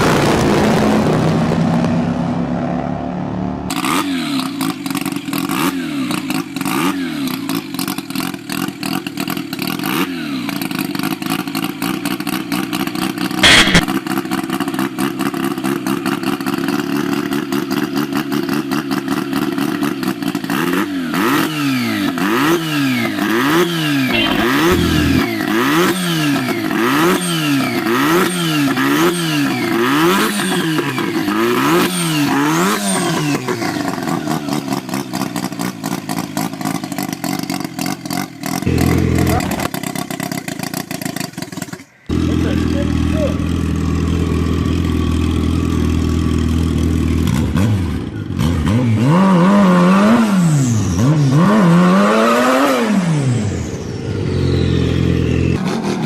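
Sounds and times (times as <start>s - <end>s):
motorcycle engine revving: 0.0s - 56.0s
sharp bang: 13.4s - 13.9s, 24.1s - 25.4s.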